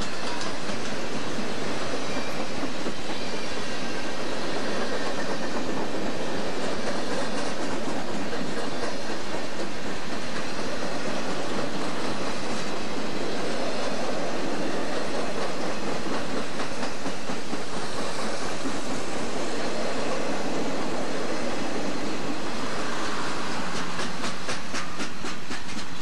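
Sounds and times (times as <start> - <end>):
faint wheel clicking on track: 0.0 - 3.6, 23.1 - 26.0
steel wheels rattling on rail: 0.0 - 26.0.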